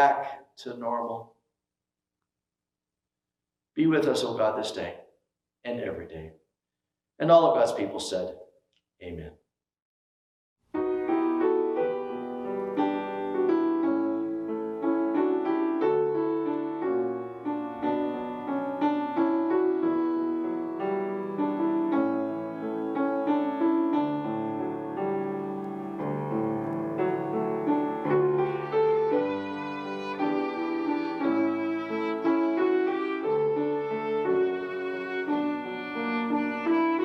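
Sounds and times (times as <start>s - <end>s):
piano playing a hymn: 10.8s - 37.0s.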